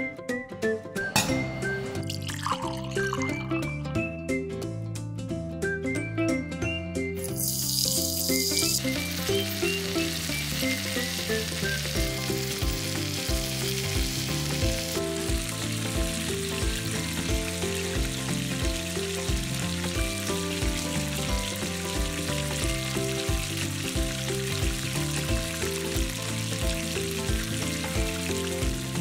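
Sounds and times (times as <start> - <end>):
gentle background music: 0.0 - 29.0
food sizzling in oil: 7.2 - 29.0.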